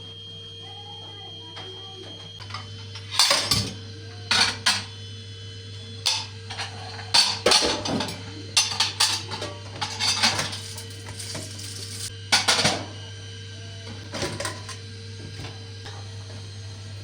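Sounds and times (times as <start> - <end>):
dishes and cutlery clattering: 2.4 - 4.9, 6.1 - 12.8.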